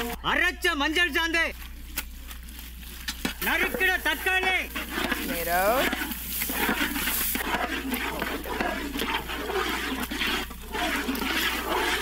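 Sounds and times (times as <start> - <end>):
ladle stirring in pan: 2.2 - 12.0
vegetables sizzling in oil: 3.4 - 9.2.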